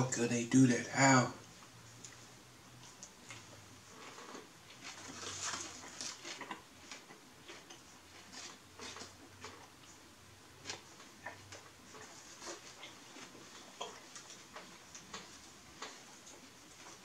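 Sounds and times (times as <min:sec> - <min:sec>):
chewing sandwich: 0:01.4 - 0:17.0.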